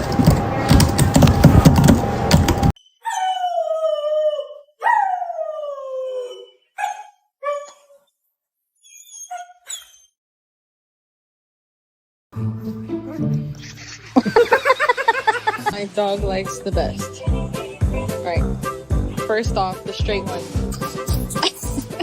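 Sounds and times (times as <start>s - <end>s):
loud noisy clatter: 0.0s - 2.7s
dog howling and yelping: 3.0s - 8.0s, 8.9s - 10.0s.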